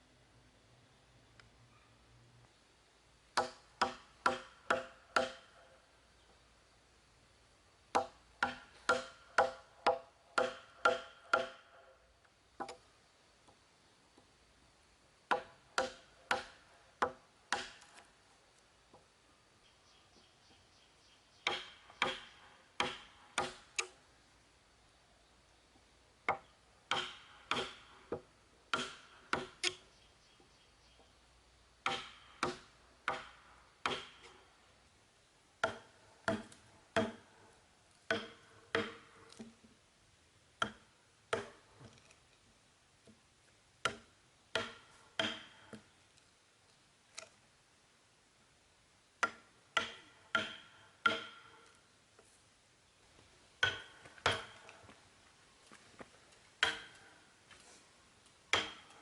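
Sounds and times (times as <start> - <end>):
hand tool striking wood: 3.4 - 5.5, 7.9 - 11.6, 15.3 - 18.0, 21.4 - 24.0, 26.3 - 29.8, 31.8 - 34.4, 35.6 - 37.3, 38.1 - 39.5, 40.6 - 42.0, 43.8 - 45.9, 49.2 - 51.6, 53.6 - 54.8, 56.6 - 57.1, 58.5 - 59.0.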